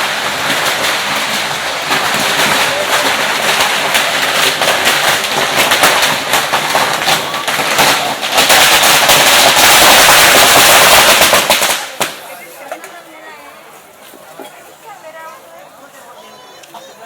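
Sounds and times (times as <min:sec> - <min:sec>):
firecrackers crackling: 0:00.0 - 0:13.0.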